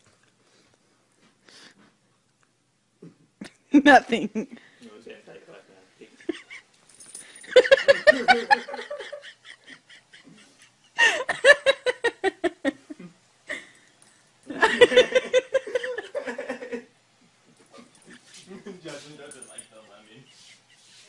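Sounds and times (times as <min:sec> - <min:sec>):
person laughing hard: 0:07.6 - 0:13.7, 0:14.5 - 0:16.9.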